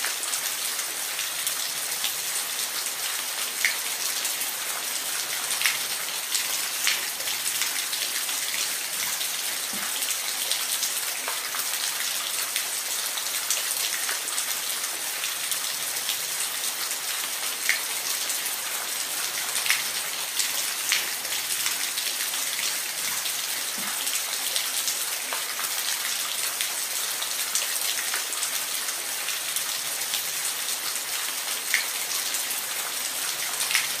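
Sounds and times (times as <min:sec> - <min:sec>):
steady rain falling: 0:00.0 - 0:34.0.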